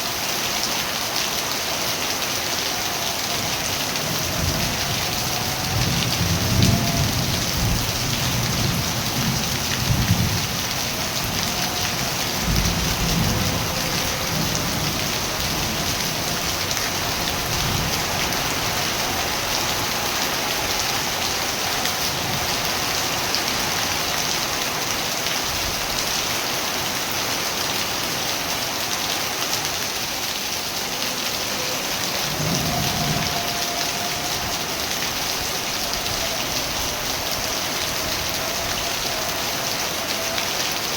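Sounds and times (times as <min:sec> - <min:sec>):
heavy rain falling: 0:00.0 - 0:40.9
distant thunder rumbles: 0:02.8 - 0:24.1.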